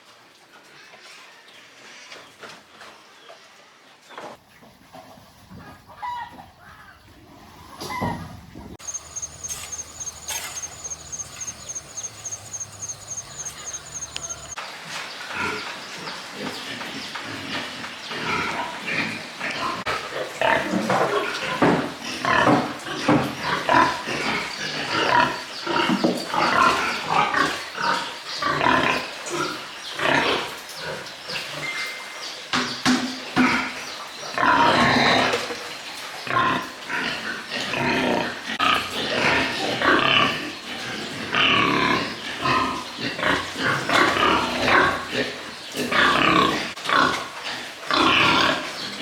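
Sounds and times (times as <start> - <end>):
pigs grunting and squealing: 8.8 - 14.6, 36.3 - 49.0.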